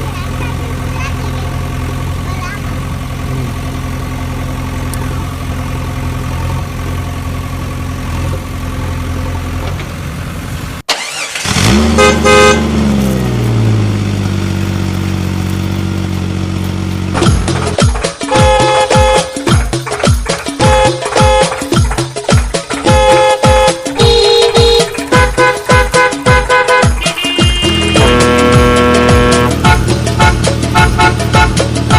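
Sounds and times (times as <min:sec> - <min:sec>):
vehicle engine hum: 0:00.0 - 0:31.9
short horn honks: 0:11.7 - 0:12.8, 0:18.2 - 0:19.6, 0:20.6 - 0:21.7, 0:22.8 - 0:31.9.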